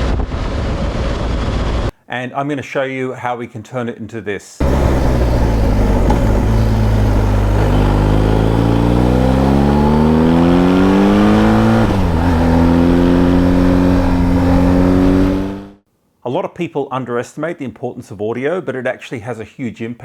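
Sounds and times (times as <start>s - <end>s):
motorcycle engine and exhaust: 4.6s - 15.8s.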